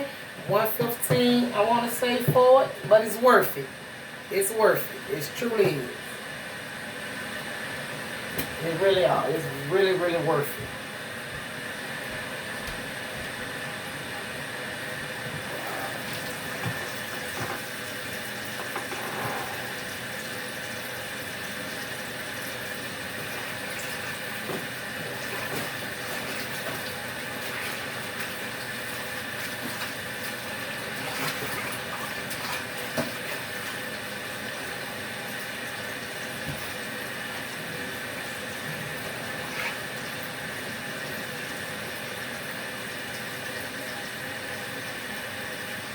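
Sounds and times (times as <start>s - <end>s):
washing machine motor hum: 0.0s - 45.9s
water churning: 14.8s - 20.5s, 22.3s - 34.9s.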